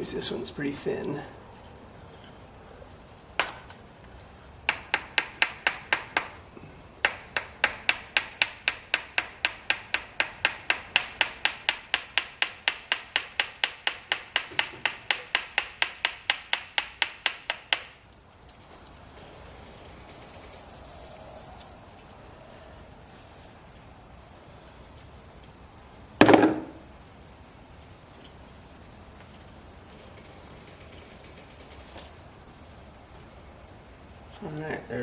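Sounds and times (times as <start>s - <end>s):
hammer tapping on metal: 3.4s - 3.7s, 4.7s - 6.4s, 7.0s - 18.0s.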